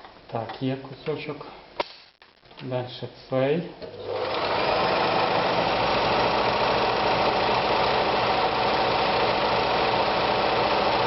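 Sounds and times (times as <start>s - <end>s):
sewing machine stitching: 4.0s - 11.0s.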